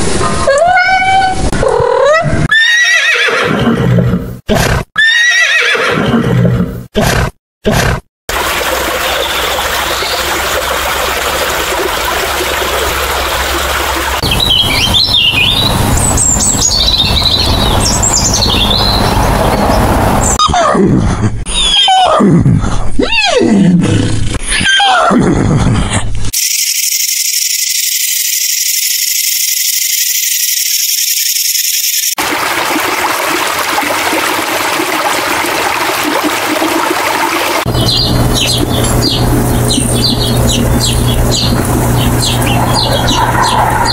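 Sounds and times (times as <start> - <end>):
cat meowing: 0.5 - 1.5
starling chattering song: 9.0 - 20.4, 26.4 - 32.2, 37.7 - 43.9.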